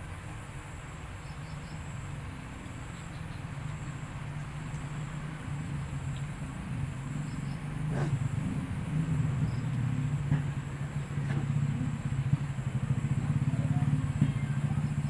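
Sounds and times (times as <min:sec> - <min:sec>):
small engine idling: 0:00.0 - 0:15.0
faint clicks: 0:03.5 - 0:04.9, 0:06.1 - 0:06.3.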